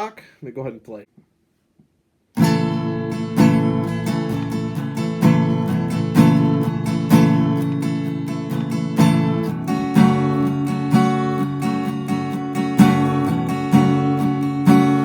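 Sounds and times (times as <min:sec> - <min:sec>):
acoustic guitar strumming chords: 0:02.4 - 0:15.0.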